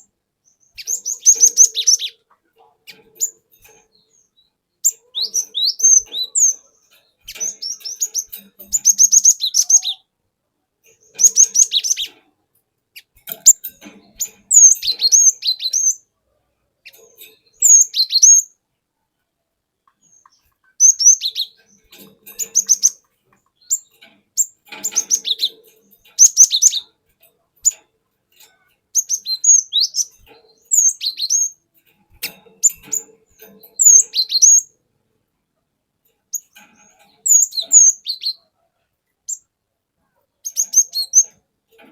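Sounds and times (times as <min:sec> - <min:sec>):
bird singing whistled notes: 0:00.4 - 0:02.2, 0:04.1 - 0:06.6, 0:07.3 - 0:10.1, 0:11.2 - 0:12.1, 0:14.5 - 0:16.0, 0:17.5 - 0:18.6, 0:20.8 - 0:21.6, 0:26.2 - 0:26.9, 0:29.0 - 0:31.6, 0:33.8 - 0:34.7, 0:37.2 - 0:38.4, 0:40.4 - 0:41.3.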